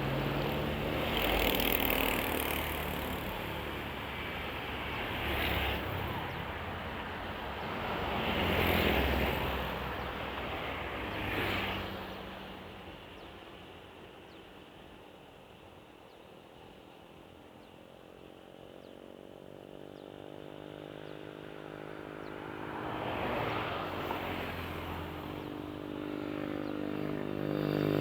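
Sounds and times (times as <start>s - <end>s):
vehicles passing: 0.0s - 12.7s, 20.3s - 28.0s.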